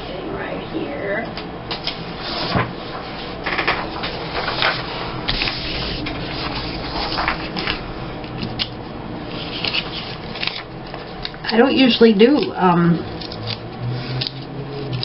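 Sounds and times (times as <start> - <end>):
paper rustling and sliding: 1.8 - 11.4, 13.1 - 15.0.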